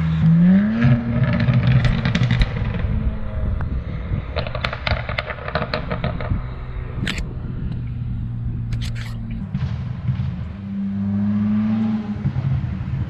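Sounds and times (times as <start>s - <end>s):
car engine revving and idling: 0.0s - 13.0s
exhaust crackles and pops: 0.7s - 10.7s.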